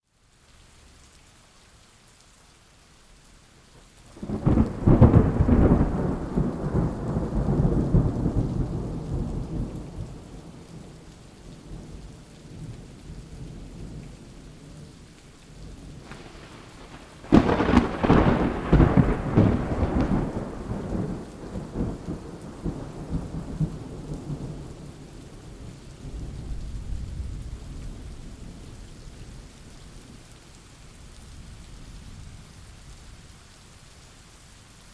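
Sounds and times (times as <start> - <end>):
steady rain: 0.0 - 34.9
thunder rolling: 4.2 - 11.0, 15.9 - 24.8.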